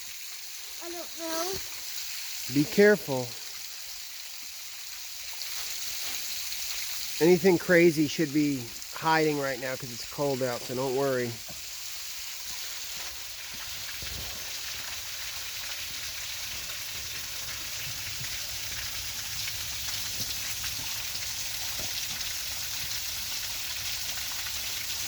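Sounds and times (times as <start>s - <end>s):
waterfall splashing: 2.4s - 3.4s, 7.2s - 11.7s.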